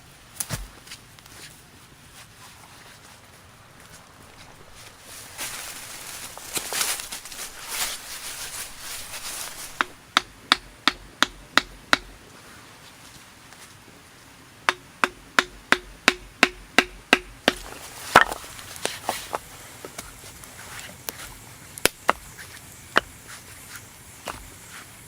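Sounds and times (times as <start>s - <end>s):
hand tool striking wood: 9.5s - 12.2s, 14.7s - 20.2s, 21.2s - 22.3s.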